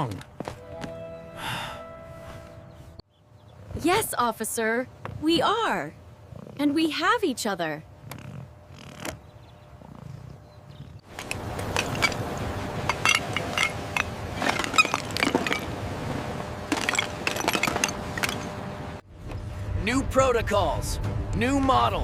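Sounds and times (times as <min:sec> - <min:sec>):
debris clattering and clinking: 0:11.1 - 0:15.8, 0:16.7 - 0:18.6.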